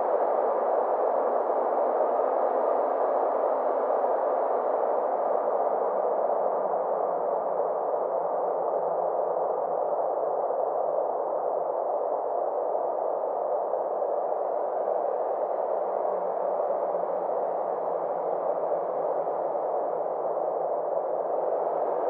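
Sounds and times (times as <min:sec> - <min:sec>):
synthesized filtered noise drone: 0:00.0 - 0:22.0.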